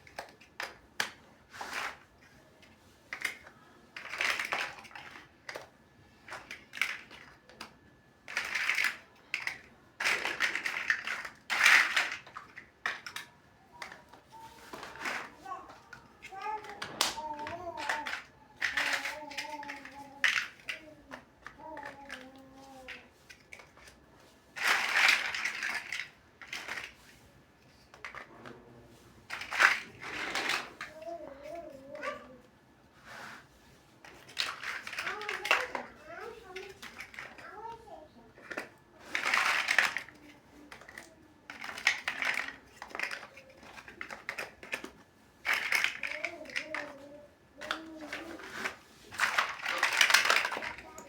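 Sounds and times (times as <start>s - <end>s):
plastic bricks clicking together: 3.1s - 24.0s, 24.6s - 27.0s, 29.3s - 32.3s, 34.0s - 37.8s, 38.4s - 51.0s
rattling rustle of bricks: 34.1s - 51.0s.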